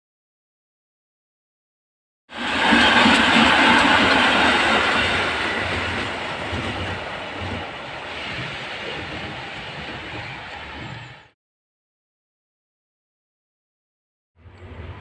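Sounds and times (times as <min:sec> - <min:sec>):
electric train running on track: 0:02.3 - 0:11.4, 0:14.4 - 0:15.0.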